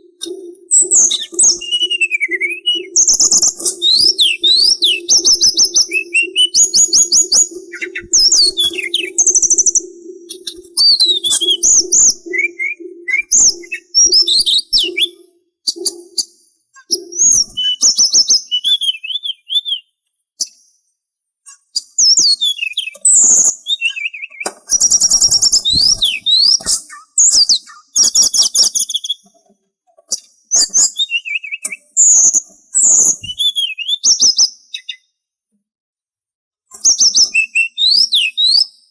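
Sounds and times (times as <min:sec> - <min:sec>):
songbird singing: 0:00.0 - 0:20.6, 0:21.5 - 0:29.4, 0:30.2 - 0:35.1.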